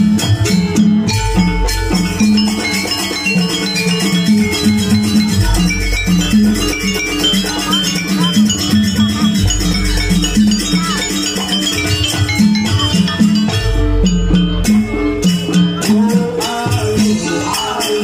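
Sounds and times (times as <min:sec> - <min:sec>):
fast percussion beat: 0:00.0 - 0:18.0
gamelan music: 0:00.0 - 0:18.0.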